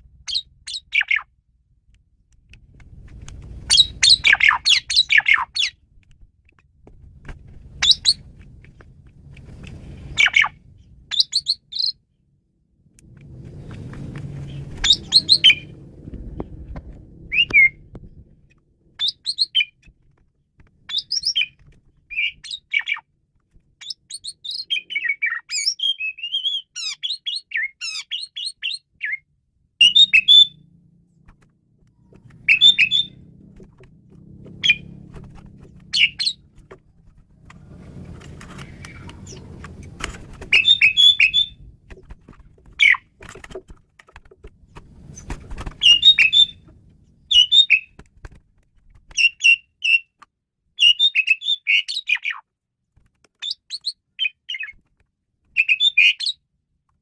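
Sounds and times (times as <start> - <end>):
low background rumble: 0.0 - 22.4, 29.3 - 49.1
starling singing: 0.3 - 1.3, 3.7 - 5.8, 7.8 - 8.3, 10.1 - 12.0, 14.4 - 15.8, 17.3 - 17.8, 19.0 - 19.8, 20.9 - 23.1, 23.8 - 29.2, 29.8 - 30.6, 32.1 - 33.3, 34.5 - 35.0, 35.7 - 36.6, 40.5 - 41.7, 42.8 - 43.1, 45.8 - 48.0.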